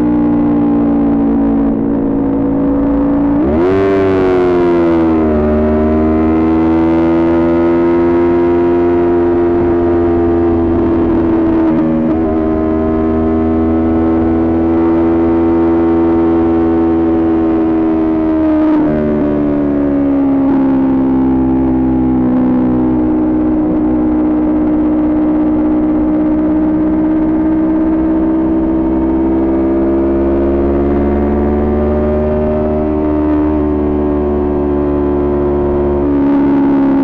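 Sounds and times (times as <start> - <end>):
low wind rumble: 0.0 - 7.0, 8.0 - 15.8
motorcycle engine cruising: 0.0 - 37.0.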